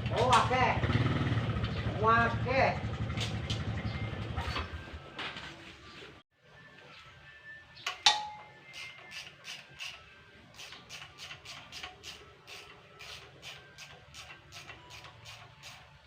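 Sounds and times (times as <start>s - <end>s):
metal tools clinking: 7.9s - 9.2s.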